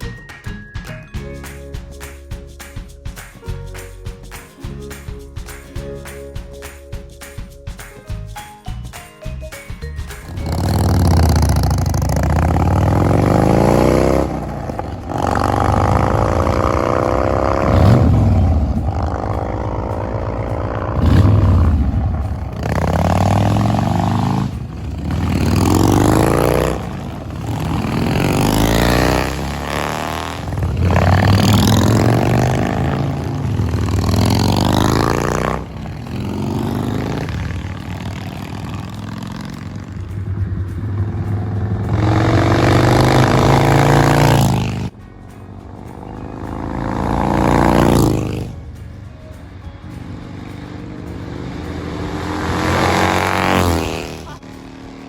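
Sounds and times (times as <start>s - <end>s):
motorcycle engine accelerating: 10.2s - 55.0s.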